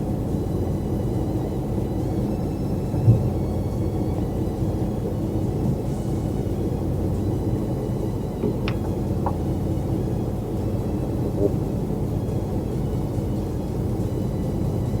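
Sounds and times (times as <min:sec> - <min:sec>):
boat engine droning: 0:00.0 - 0:15.0
dull knock: 0:08.4 - 0:09.4.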